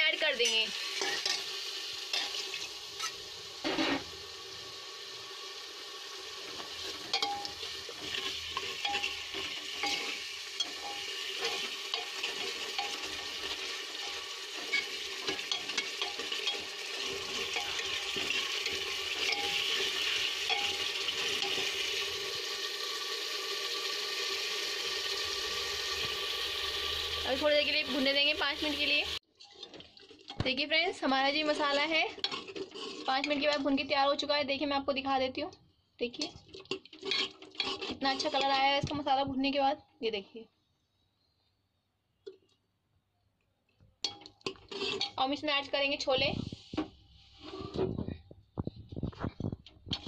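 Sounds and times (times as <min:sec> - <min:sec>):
masala sizzling in a pot: 0:00.0 - 0:39.7, 0:44.0 - 0:50.0
steel ladle scraping pot: 0:00.3 - 0:04.1, 0:06.5 - 0:22.3, 0:29.3 - 0:30.6, 0:31.3 - 0:33.9, 0:36.1 - 0:38.8, 0:44.0 - 0:45.5, 0:46.4 - 0:48.0.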